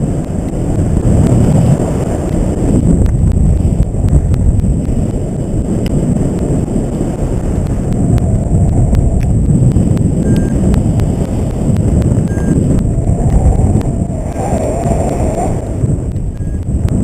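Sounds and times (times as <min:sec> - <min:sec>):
wind buffeting microphone: 0:00.0 - 0:17.0
sharp ticks: 0:02.1 - 0:17.0.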